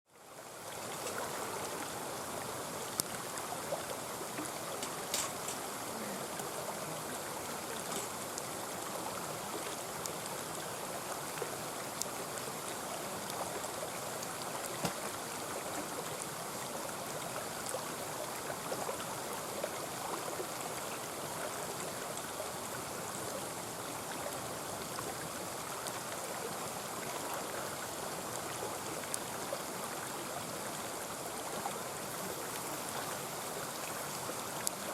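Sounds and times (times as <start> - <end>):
stream flowing: 0.1 - 34.9
campfire crackling: 0.6 - 16.4, 31.5 - 34.9.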